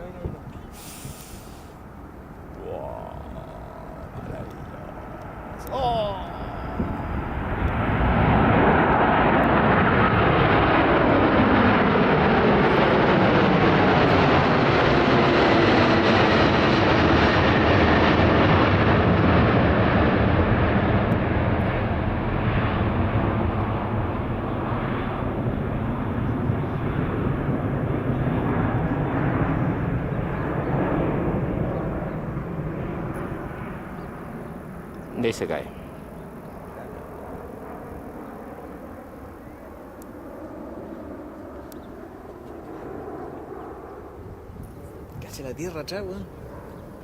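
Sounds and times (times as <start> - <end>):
jet airliner passing by: 0.0 - 47.0.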